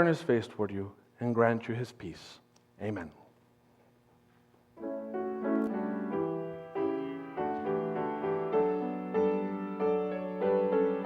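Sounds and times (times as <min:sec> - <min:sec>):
slow piano melody: 0:04.8 - 0:11.0.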